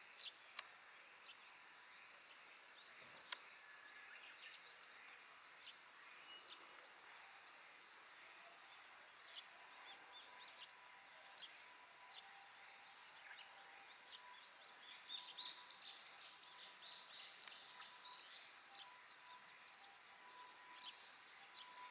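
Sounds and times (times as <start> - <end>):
faint sparrow chirps: 1.2 - 21.9.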